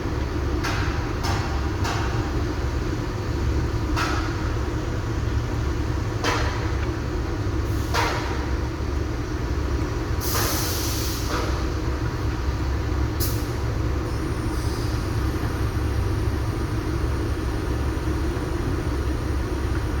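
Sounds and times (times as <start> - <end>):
truck engine rumbling: 0.0 - 20.0
air brake hisses: 10.2 - 11.6, 13.2 - 15.2.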